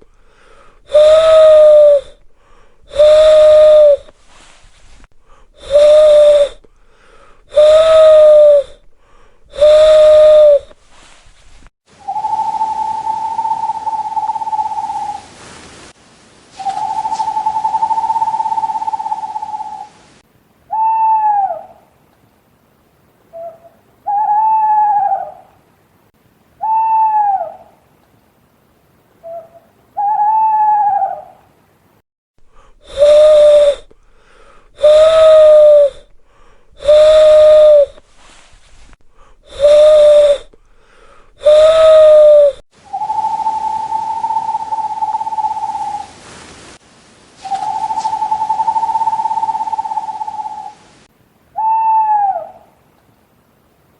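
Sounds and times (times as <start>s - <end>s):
owl low hoots: 0.0s - 15.4s, 16.5s - 20.1s, 20.7s - 21.9s, 23.3s - 25.6s, 26.6s - 27.8s, 29.2s - 31.5s, 32.5s - 46.2s, 47.4s - 50.9s, 51.5s - 52.8s
owl short falling calls: 0.3s - 2.2s, 2.9s - 5.0s, 5.6s - 8.8s, 9.5s - 15.3s, 16.6s - 19.9s, 32.9s - 38.5s, 39.5s - 46.2s, 47.4s - 50.8s, 51.6s - 52.7s
owl whistled note: 0.9s - 2.2s, 2.9s - 4.9s, 5.6s - 6.6s, 7.5s - 8.8s, 9.5s - 15.3s, 16.6s - 19.9s, 20.7s - 21.7s, 23.3s - 25.4s, 26.6s - 27.7s, 32.8s - 33.9s, 34.8s - 36.1s, 36.8s - 38.5s, 39.5s - 40.5s, 41.4s - 46.1s, 47.4s - 50.8s, 51.6s - 52.6s.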